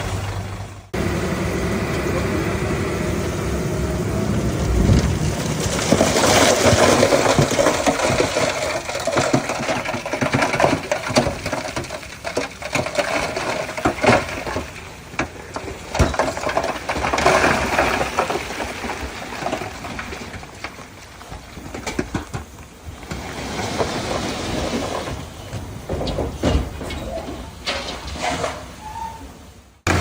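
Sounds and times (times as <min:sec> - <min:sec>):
bulldozer engine: 0:00.0 - 0:30.0
metallic clanks and rattles: 0:24.0 - 0:28.8.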